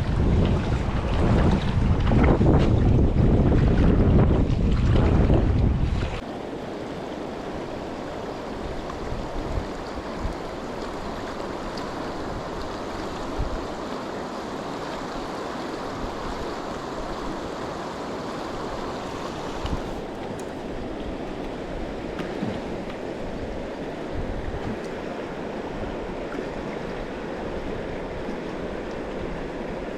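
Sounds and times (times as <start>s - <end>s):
river water rushing: 6.0s - 29.9s.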